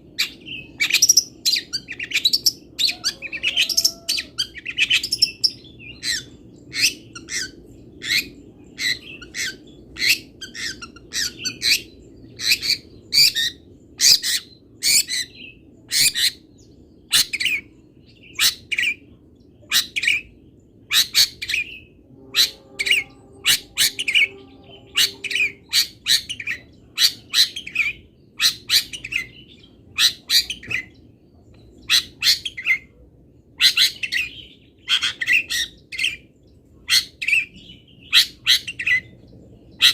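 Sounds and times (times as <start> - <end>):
faint low hum: 0.0 - 39.9
shrike chirps and squawks: 0.2 - 15.3, 20.9 - 29.4, 30.0 - 30.9, 33.6 - 36.2.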